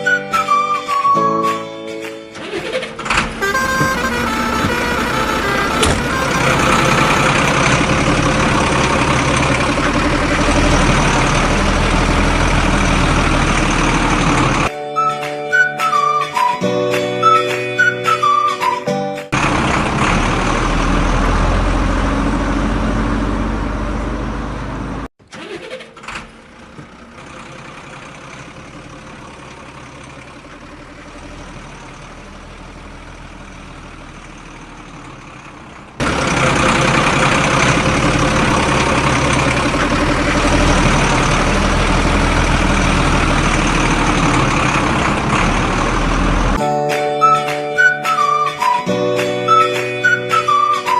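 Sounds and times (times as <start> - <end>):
vehicle engine running: 2.3 - 14.7, 19.3 - 46.7.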